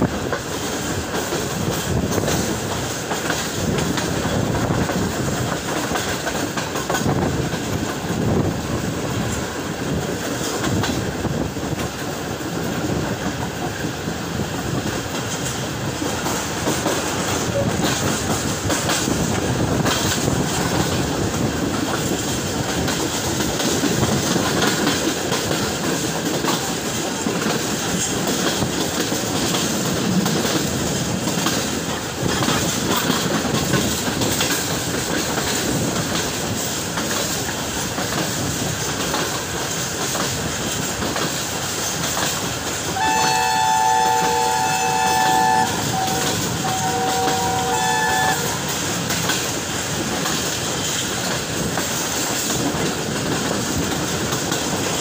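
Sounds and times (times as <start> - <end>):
clickety-clack over rail joints: 0.0 - 55.0
train wheels rumbling on rail: 0.0 - 55.0.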